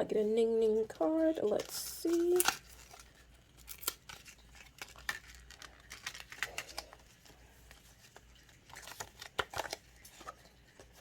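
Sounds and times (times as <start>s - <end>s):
packaging torn and crinkled: 1.6s - 7.3s, 8.2s - 10.3s.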